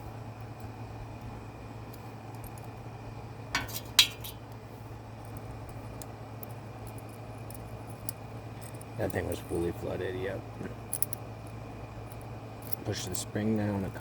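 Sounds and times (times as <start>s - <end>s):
steady low hum: 0.0s - 14.0s
metal parts clinking: 3.6s - 4.4s.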